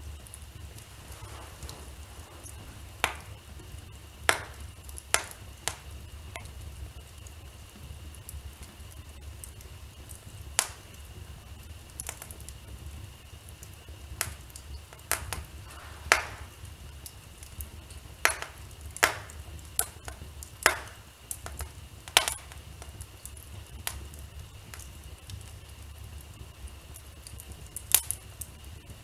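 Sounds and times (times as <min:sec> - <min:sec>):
low steady rumble: 0:00.0 - 0:08.6, 0:12.7 - 0:24.6
wood fire crackling: 0:00.0 - 0:29.0
sharp pops: 0:00.6 - 0:06.5, 0:14.2 - 0:23.0.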